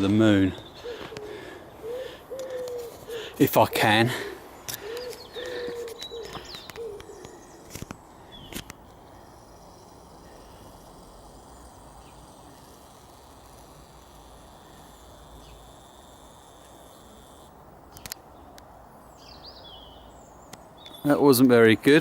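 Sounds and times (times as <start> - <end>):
sharp clicks: 4.7 - 18.7
faint steady hiss: 6.3 - 22.0.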